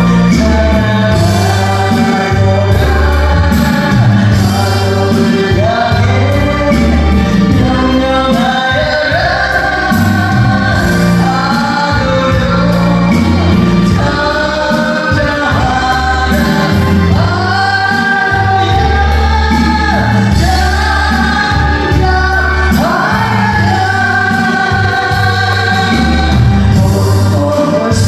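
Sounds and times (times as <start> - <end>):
instrumental accompaniment: 0.0 - 28.0
person singing gospel song: 0.0 - 28.0
steady bass: 0.0 - 28.0.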